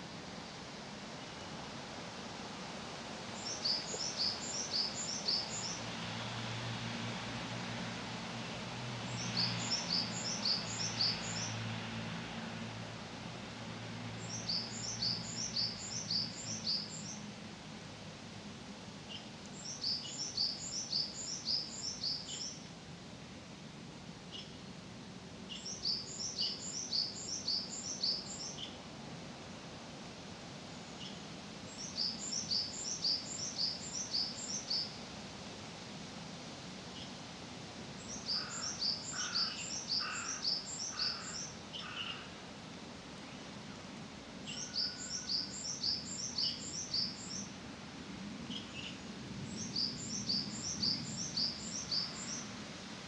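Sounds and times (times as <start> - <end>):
songbird singing: 3.3 - 6.2, 8.4 - 11.9, 14.1 - 17.8, 19.0 - 22.7, 24.3 - 24.7, 25.4 - 28.9, 30.8 - 35.0, 36.9 - 37.2, 37.9 - 42.4, 43.2 - 47.6, 48.3 - 52.6.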